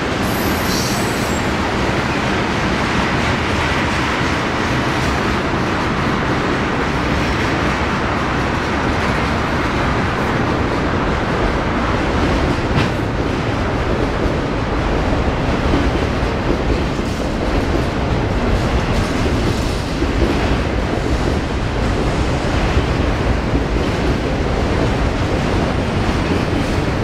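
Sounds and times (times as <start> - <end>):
freight train wheels rumbling: 0.0 - 27.0.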